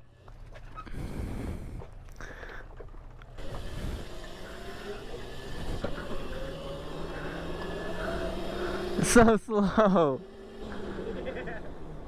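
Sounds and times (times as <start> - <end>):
wind and tyre noise: 0.0 - 9.3
electric motor whining: 3.3 - 12.0.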